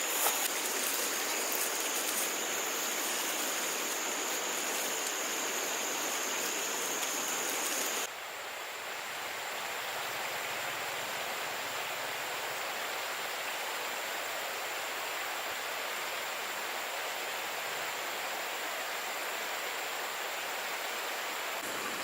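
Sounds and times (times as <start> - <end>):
flowing water rushing: 0.0 - 8.1, 9.2 - 22.0.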